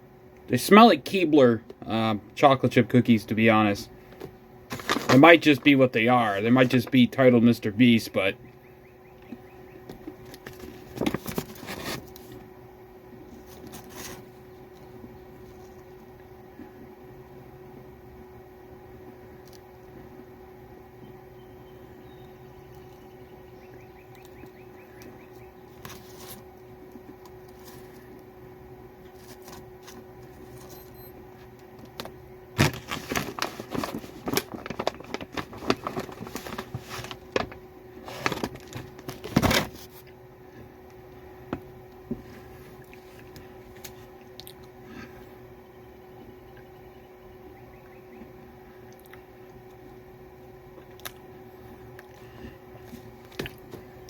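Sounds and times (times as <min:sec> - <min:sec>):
steady low hum: 0:00.0 - 0:54.0
plastic packaging crinkling: 0:04.7 - 0:05.7, 0:32.6 - 0:40.0.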